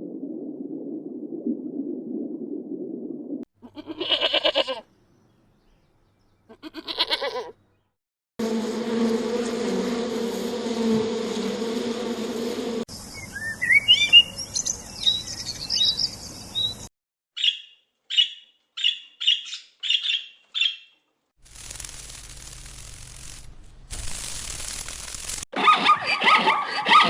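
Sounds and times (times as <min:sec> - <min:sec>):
bird chirping: 0:04.9 - 0:06.5, 0:12.9 - 0:21.1
steady buzzing hum: 0:08.4 - 0:12.9, 0:21.4 - 0:25.4.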